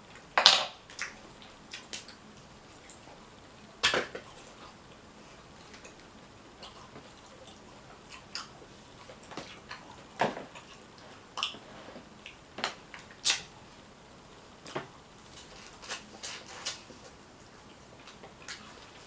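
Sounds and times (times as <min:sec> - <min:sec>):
wet eating smacks and crackles: 0:03.8 - 0:11.6.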